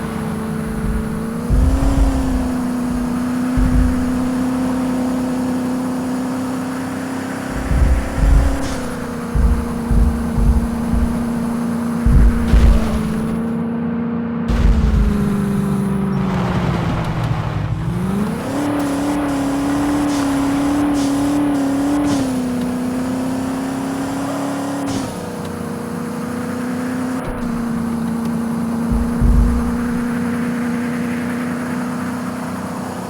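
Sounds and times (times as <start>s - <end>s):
low rumbling thumps: 0.0s - 6.2s, 7.4s - 13.6s, 14.5s - 16.1s, 28.9s - 30.2s
car engine drone from inside: 0.0s - 33.0s.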